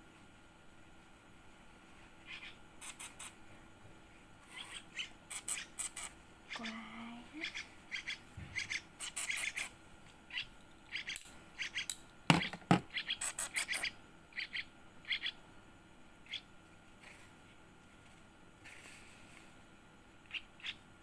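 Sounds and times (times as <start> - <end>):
bird nestling begging chirps: 4.6 - 6.8, 7.4 - 9.7, 10.3 - 15.4
knocks: 12.3 - 12.9.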